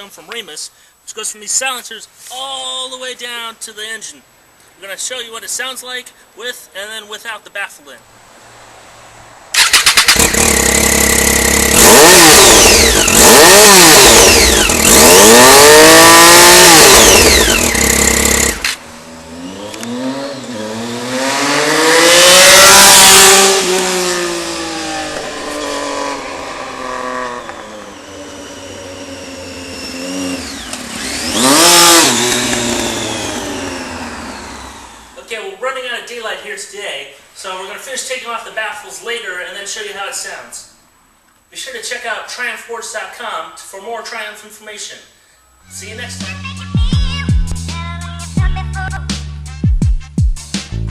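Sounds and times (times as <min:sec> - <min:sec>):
motorcycle engine revving: 0:09.5 - 0:35.2.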